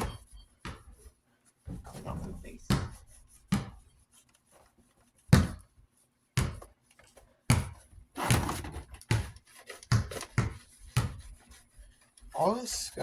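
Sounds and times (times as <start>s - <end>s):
scrubbing rub: 1.5s - 5.3s, 9.4s - 13.0s.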